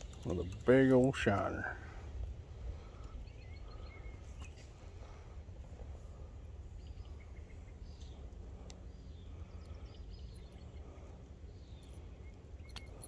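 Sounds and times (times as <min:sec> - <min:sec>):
steady low rumble: 0:00.0 - 0:13.0
faint bird chirps: 0:02.8 - 0:05.2, 0:06.6 - 0:13.0.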